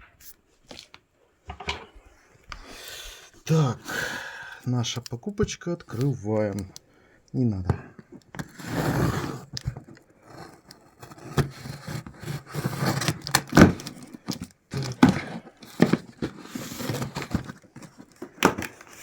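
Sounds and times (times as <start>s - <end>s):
cardboard scraping and rustling: 8.4s - 19.0s.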